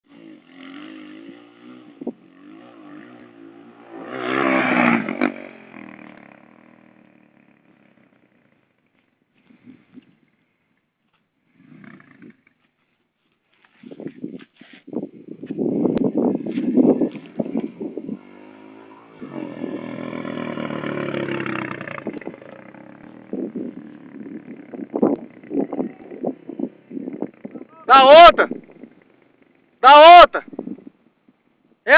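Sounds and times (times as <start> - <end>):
dirt bike engine revving: 0.1 - 9.9, 11.5 - 12.6, 15.5 - 30.8.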